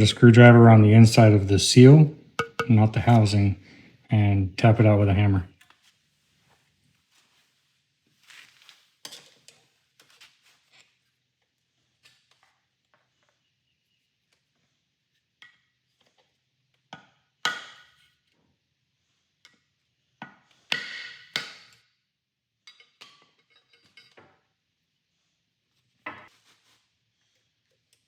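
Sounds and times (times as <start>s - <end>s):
hammer striking screwdriver: 2.4s - 2.8s.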